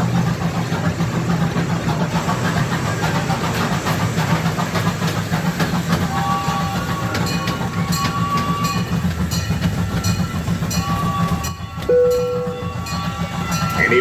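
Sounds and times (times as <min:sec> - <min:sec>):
small train engine running: 0:00.0 - 0:14.0
wheels clicking on track: 0:00.0 - 0:14.0
steady high tone: 0:11.4 - 0:14.0.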